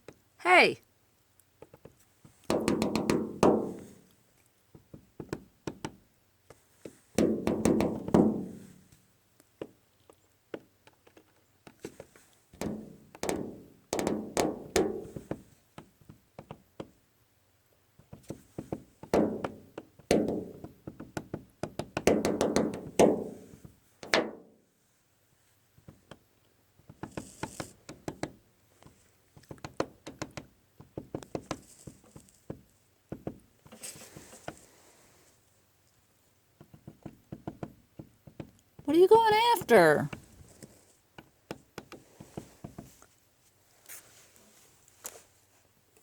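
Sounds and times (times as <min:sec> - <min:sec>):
woodpecker hammering on wood: 0:02.5 - 0:03.8.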